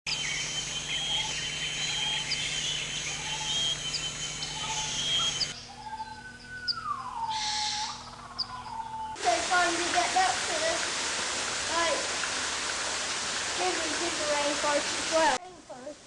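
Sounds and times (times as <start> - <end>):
birds chirping: 0.1 - 10.2
steady hiss: 9.2 - 16.0.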